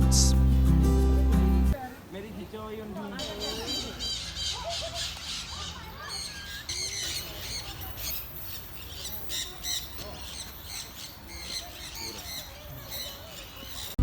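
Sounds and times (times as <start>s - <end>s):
parrots squawking and chattering: 0.0s - 0.4s, 3.2s - 14.0s.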